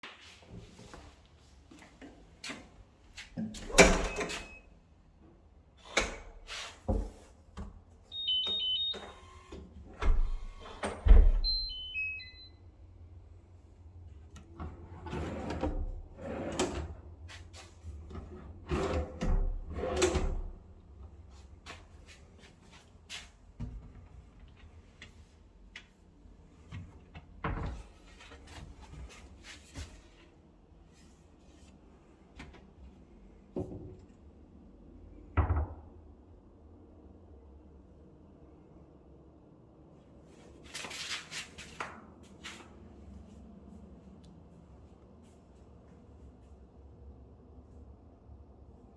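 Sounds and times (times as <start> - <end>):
cabinet doors and drawers shutting: 3.4 - 4.5, 10.0 - 11.6
short electronic beeps: 8.1 - 9.3, 11.4 - 12.6.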